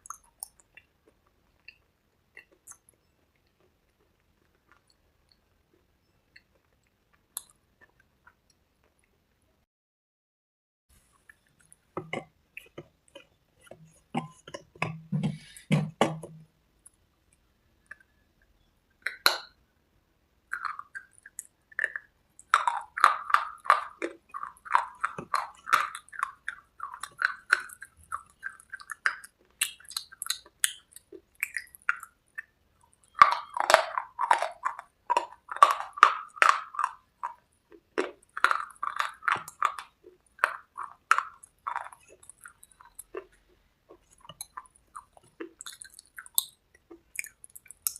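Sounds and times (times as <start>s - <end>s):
person crunching and chewing: 11.0s - 17.0s, 20.5s - 47.9s.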